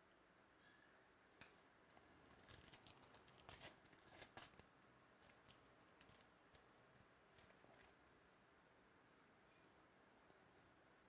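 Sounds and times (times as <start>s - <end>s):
cards and wrappers rustling: 1.9s - 8.0s.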